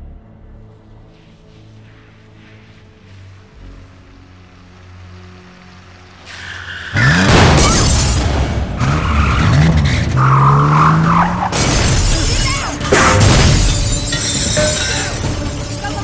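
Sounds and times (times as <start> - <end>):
dramatic film score: 0.0 - 16.0
impacts: 5.7 - 16.0
crash with shattering glass: 7.0 - 16.0.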